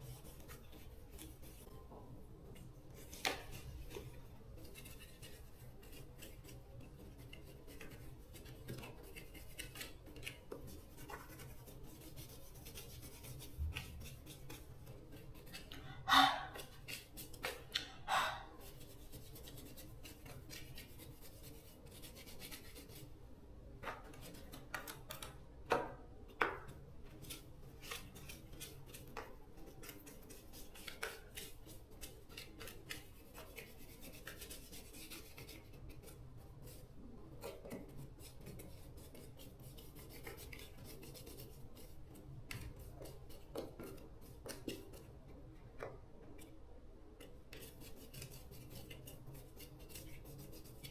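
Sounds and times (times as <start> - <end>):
scraping and rubbing: 2.9 - 23.1.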